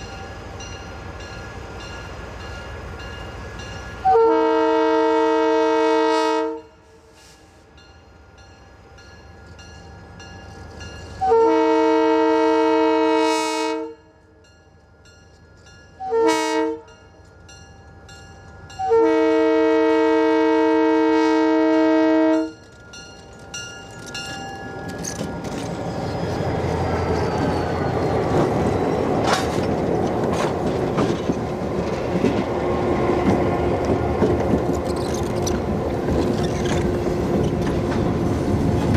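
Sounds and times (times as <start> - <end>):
train rumble and rail clatter: 0.0 - 38.9
locomotive air horn: 4.0 - 7.4, 11.2 - 14.1, 16.0 - 16.9, 18.8 - 22.6.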